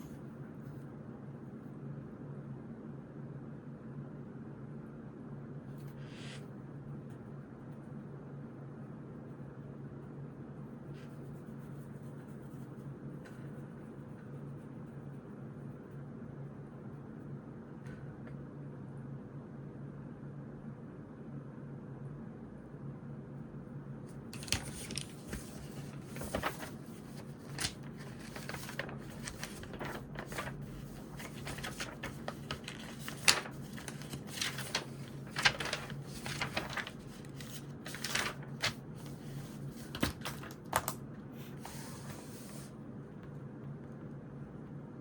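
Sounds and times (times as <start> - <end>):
steady low hum: 0.0 - 45.0
paper rustling: 24.1 - 42.7.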